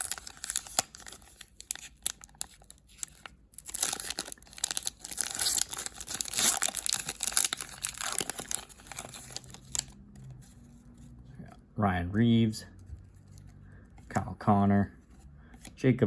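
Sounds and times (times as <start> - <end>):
wrapper crinkling and tearing: 0.0 - 10.5.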